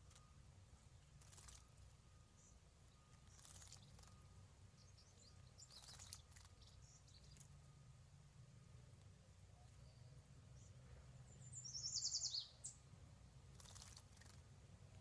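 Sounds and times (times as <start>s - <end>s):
faint high chirps: 0.0s - 12.9s.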